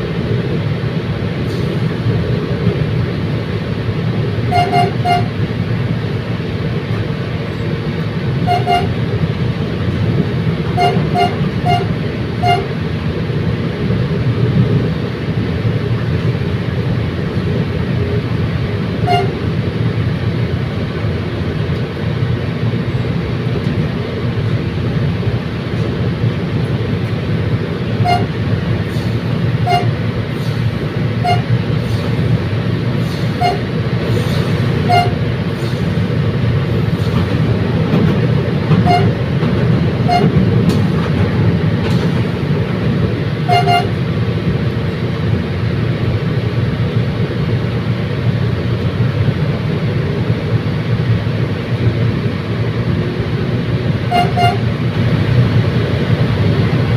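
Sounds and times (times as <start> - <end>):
train rumbling: 0.0 - 56.9
short sharp train toots: 4.5 - 5.4, 8.4 - 9.0, 10.7 - 12.8, 19.0 - 19.4, 28.0 - 30.6, 31.2 - 32.1, 33.0 - 35.9, 38.8 - 39.2, 40.0 - 40.4, 43.4 - 44.0, 54.0 - 54.8.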